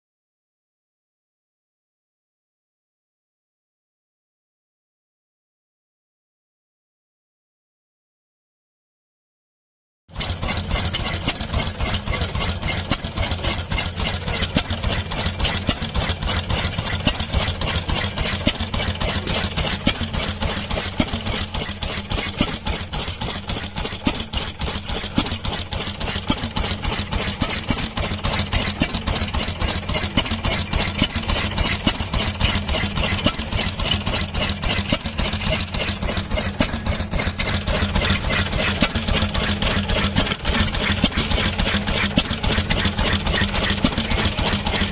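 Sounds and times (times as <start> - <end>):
stationary petrol engine running: 10.1 - 44.9.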